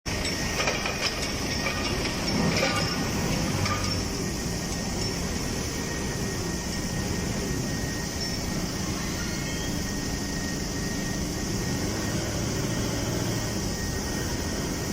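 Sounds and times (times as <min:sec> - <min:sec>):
metallic clanks: 0:00.1 - 0:04.2
furnace low rumble with hiss: 0:00.1 - 0:14.9.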